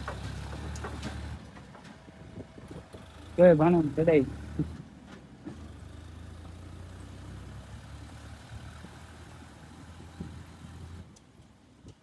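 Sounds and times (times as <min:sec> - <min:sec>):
diesel engine idling: 0:02.5 - 0:11.1.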